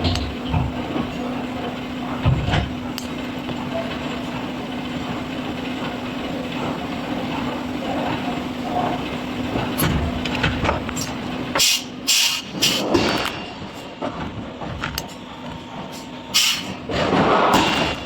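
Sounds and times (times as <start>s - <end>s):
industrial machinery humming: 0.0s - 18.0s
loud hissing blasts: 11.6s - 13.0s, 16.3s - 17.8s.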